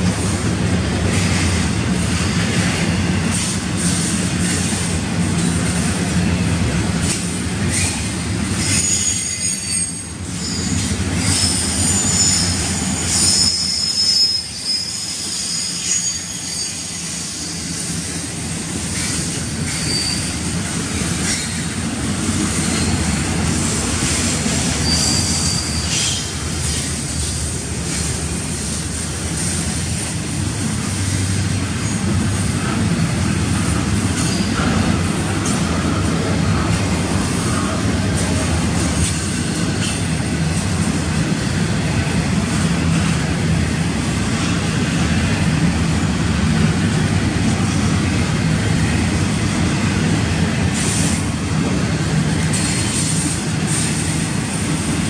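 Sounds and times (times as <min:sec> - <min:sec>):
freight cars rumbling on rails: 0:00.0 - 0:55.0
high-pitched wheel squeal: 0:07.7 - 0:17.8, 0:19.7 - 0:20.5, 0:24.7 - 0:26.9.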